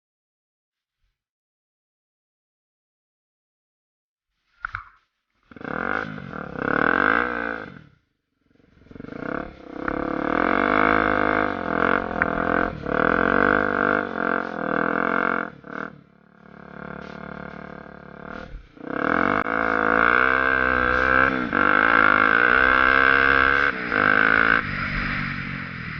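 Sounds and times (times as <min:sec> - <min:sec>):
motorcycle engine revving: 0:05.4 - 0:25.9.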